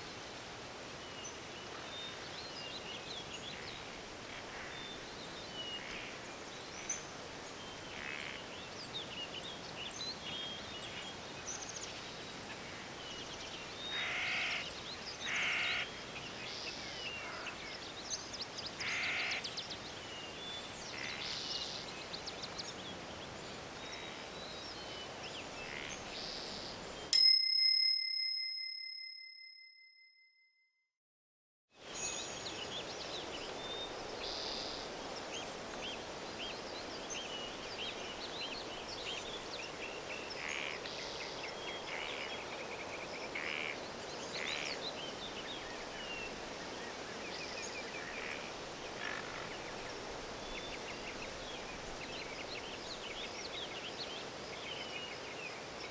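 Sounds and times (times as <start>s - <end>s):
birds chirping: 1.0s - 27.1s, 31.9s - 55.9s
timer bell ding: 27.2s - 30.3s, 32.0s - 32.7s.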